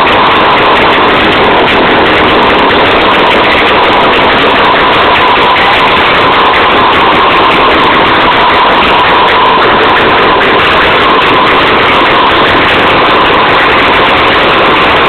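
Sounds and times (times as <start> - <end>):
engine running loud and steady: 0.0 - 15.0.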